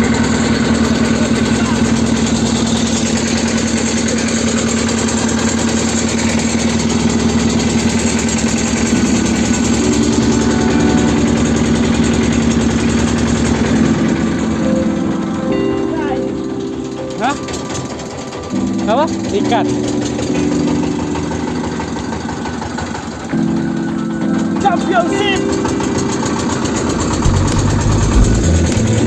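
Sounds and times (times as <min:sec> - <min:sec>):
motorboat engine puttering: 0:00.0 - 0:29.0.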